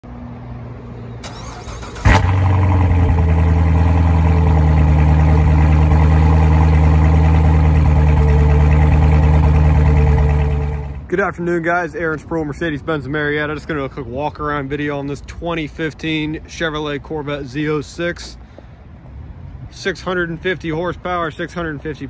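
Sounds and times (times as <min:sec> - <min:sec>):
car engine starting and idling: 0:01.2 - 0:11.1.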